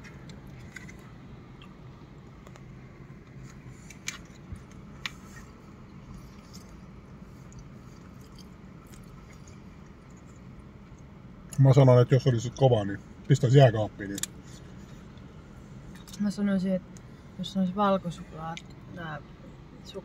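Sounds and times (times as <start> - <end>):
steady low hum: 0.0 - 20.0
chewing soft cookie: 6.0 - 11.6.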